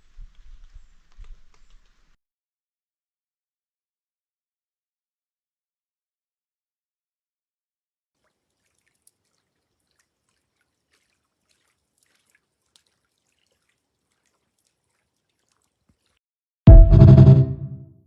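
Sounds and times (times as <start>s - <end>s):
faint water drips: 0.0s - 2.2s, 8.2s - 16.2s.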